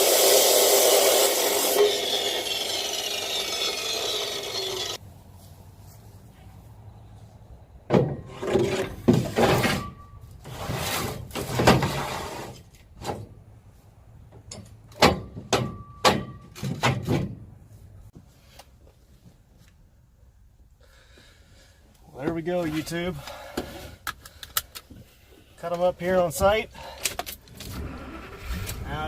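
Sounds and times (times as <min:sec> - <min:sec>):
metal clanks and scrapes: 0:08.0 - 0:13.3.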